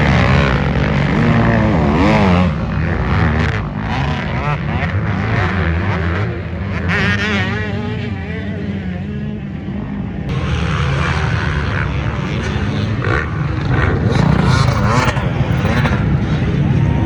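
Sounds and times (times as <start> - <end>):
off-road racing engines revving: 0.0 - 17.0
low rumble: 13.9 - 16.4.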